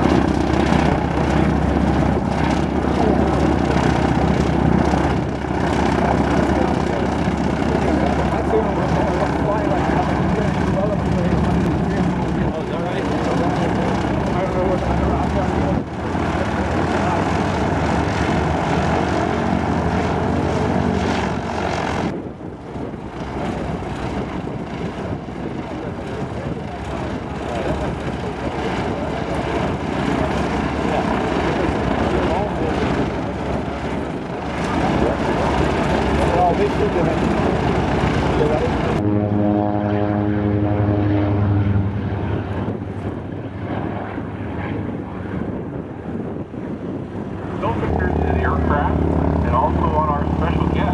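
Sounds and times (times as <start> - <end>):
propeller aircraft engine running: 0.0 - 50.9
even rushing noise: 27.1 - 50.9.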